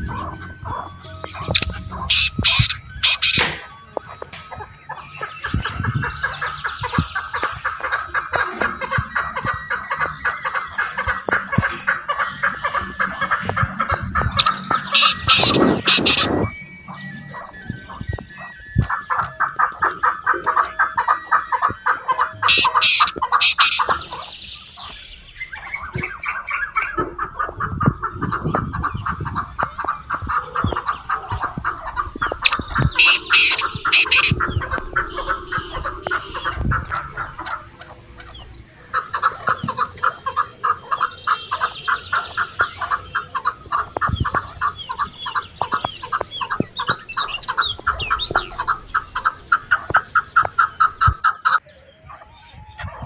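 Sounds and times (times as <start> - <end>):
chickens clucking: 0.0 - 53.0
chickens squawking: 0.0 - 53.0.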